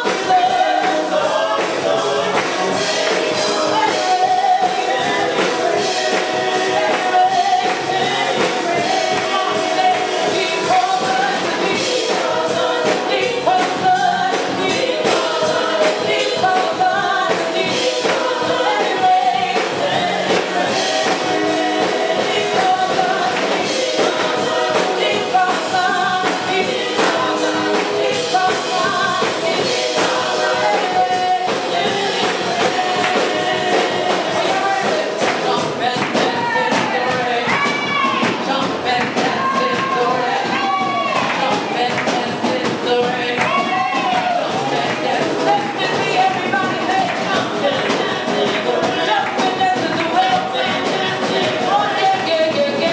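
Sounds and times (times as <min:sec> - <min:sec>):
choir singing with accompaniment: 0:00.0 - 0:52.9.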